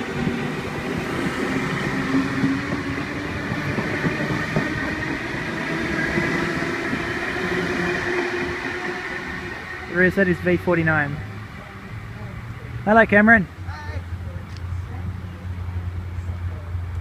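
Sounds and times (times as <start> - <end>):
train hum: 0.0 - 17.0
train wheels rumbling on rails: 0.0 - 17.0.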